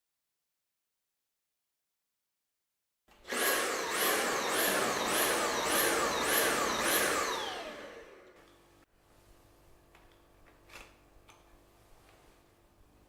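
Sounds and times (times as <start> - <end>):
vacuum motor pulsing whine: 3.3 - 8.4.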